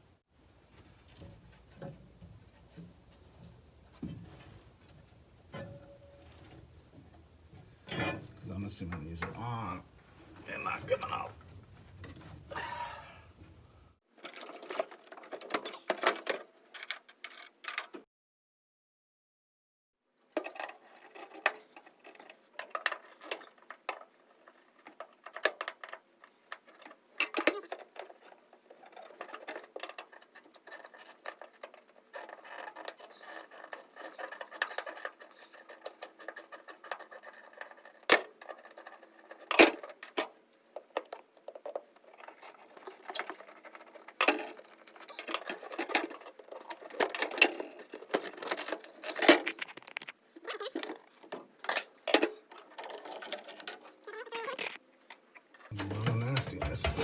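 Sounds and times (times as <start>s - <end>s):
hand tools clicking and scraping metal: 14.2s - 18.0s, 20.3s - 57.0s.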